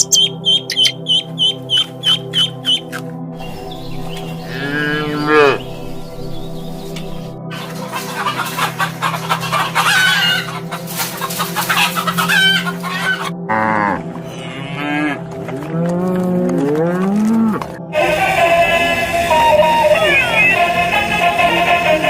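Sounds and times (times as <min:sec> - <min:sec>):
chickens clucking and squawking: 0:00.0 - 0:06.0, 0:06.8 - 0:13.5
steady low hum: 0:00.0 - 0:07.5
cattle mooing: 0:04.2 - 0:06.0, 0:13.4 - 0:17.8.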